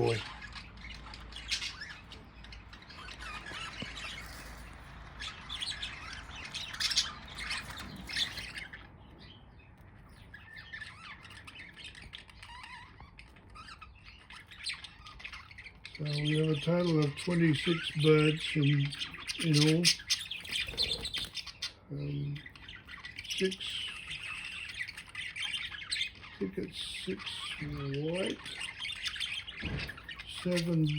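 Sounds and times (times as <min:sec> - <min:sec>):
budgerigars chattering: 0:00.0 - 0:30.9.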